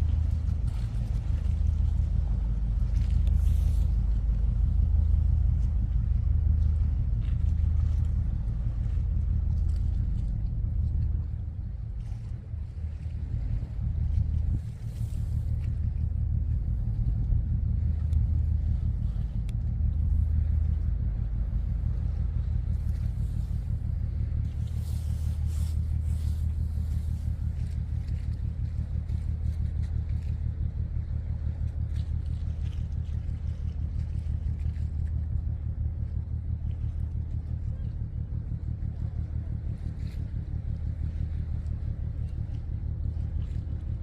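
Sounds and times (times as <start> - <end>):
low engine rumble: 0.0 - 44.0.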